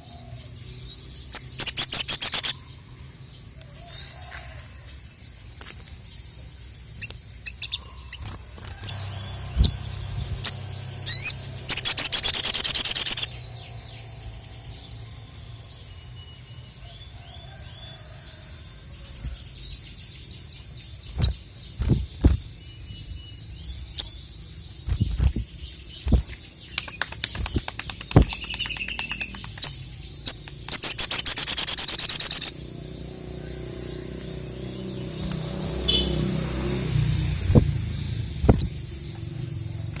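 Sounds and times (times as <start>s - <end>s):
bird chirping and trilling: 0.0s - 4.3s, 5.6s - 40.0s
sharp thumps: 38.4s - 38.8s.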